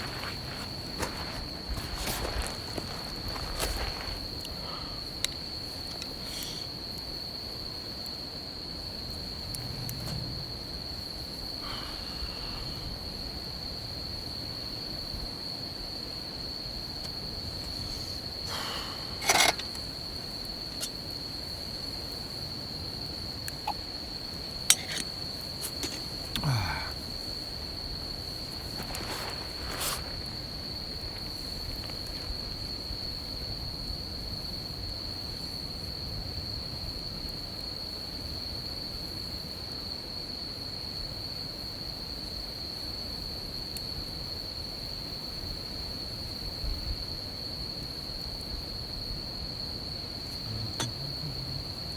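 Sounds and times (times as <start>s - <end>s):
campfire crackling: 0.0s - 35.8s
crickets trilling: 0.0s - 51.9s.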